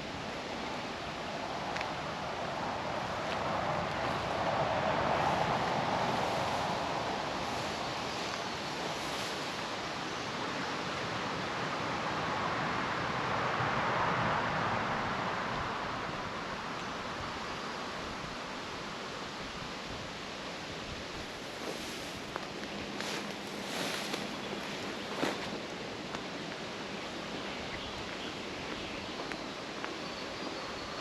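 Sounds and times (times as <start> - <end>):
vehicle tyres rushing past: 1.4 - 9.8.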